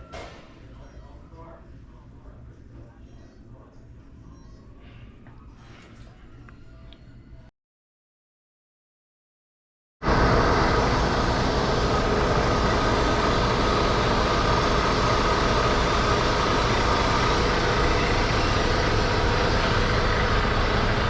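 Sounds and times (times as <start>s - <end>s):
diesel truck engine idling: 10.0s - 21.0s.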